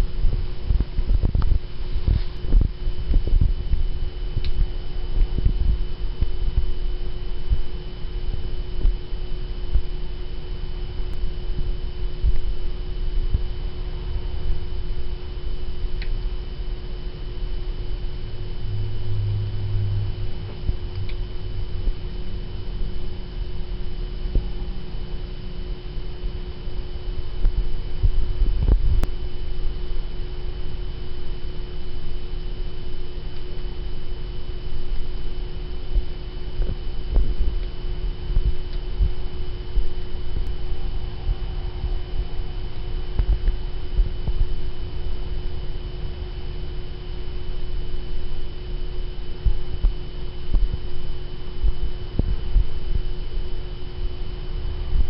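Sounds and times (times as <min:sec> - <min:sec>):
microphone handling thumps: 0:00.0 - 0:06.7
low rumble: 0:00.0 - 0:09.0, 0:17.6 - 0:25.7, 0:36.6 - 0:45.6
electrical hum: 0:00.0 - 0:55.0.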